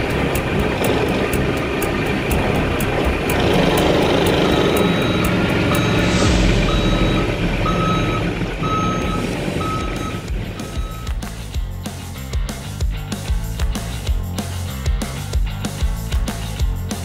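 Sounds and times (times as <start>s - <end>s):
forklift engine running: 0.0s - 11.5s
forklift reversing alarm beeping: 3.4s - 11.2s.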